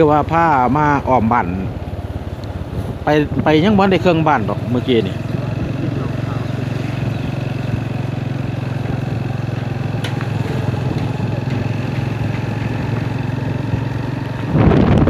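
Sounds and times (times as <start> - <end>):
man talking: 0.0 - 1.7, 3.0 - 7.0
small motorcycle engine running: 0.0 - 15.0.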